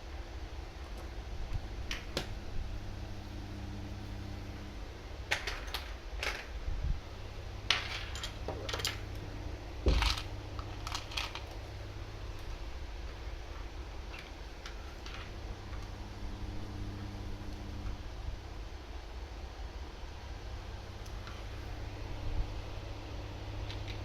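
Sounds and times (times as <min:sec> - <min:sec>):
steady low hum: 0:00.0 - 0:24.0
small parts and tools clinking: 0:05.3 - 0:06.6, 0:07.7 - 0:09.1, 0:09.9 - 0:11.6.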